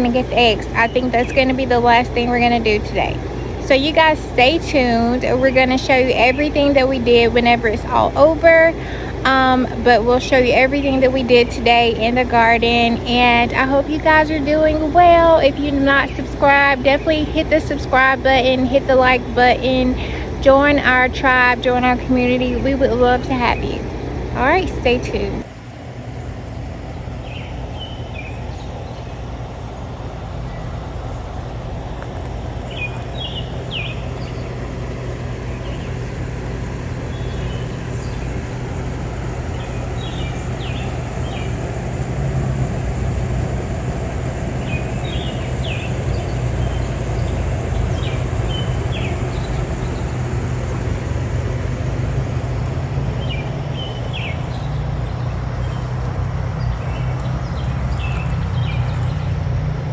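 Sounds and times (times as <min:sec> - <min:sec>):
engine-like drone: 0:00.0 - 0:59.9
bird chirps: 0:26.5 - 0:29.3, 0:32.6 - 0:42.1, 0:44.4 - 0:50.8, 0:53.2 - 0:56.0, 0:56.6 - 0:59.4.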